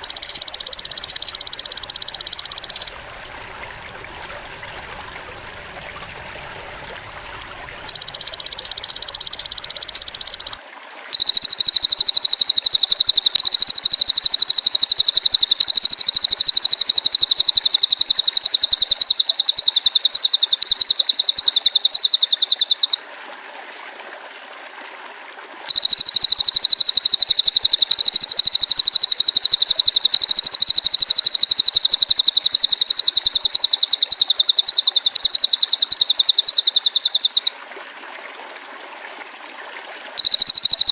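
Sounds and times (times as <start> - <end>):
bird buzzing trill: 0.0 - 2.9, 7.9 - 10.6, 11.2 - 23.0, 25.7 - 37.5
trickling water: 0.0 - 40.9.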